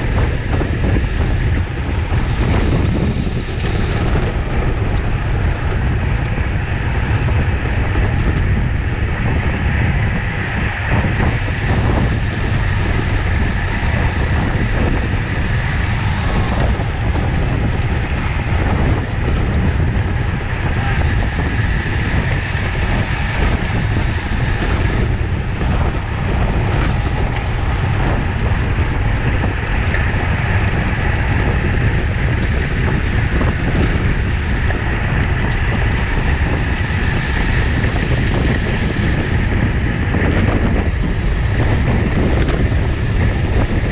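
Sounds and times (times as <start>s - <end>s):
wind buffeting microphone: 0.0s - 43.9s.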